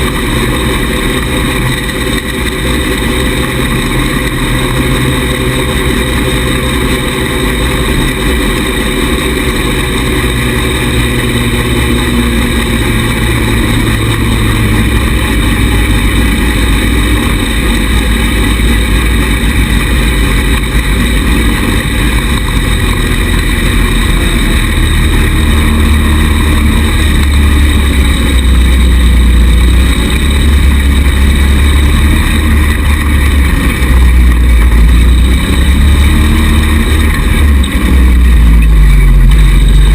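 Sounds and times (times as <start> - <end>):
small buggy engine running: 0.0 - 39.9.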